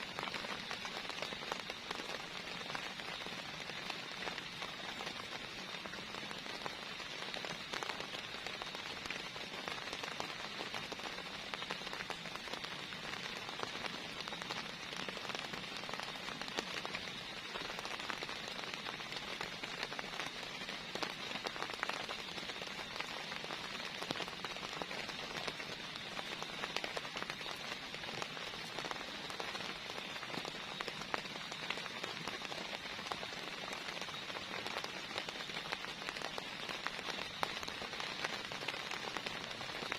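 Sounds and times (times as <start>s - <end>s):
heavy rain falling: 0.0s - 39.9s
raindrops ticking: 0.0s - 39.9s.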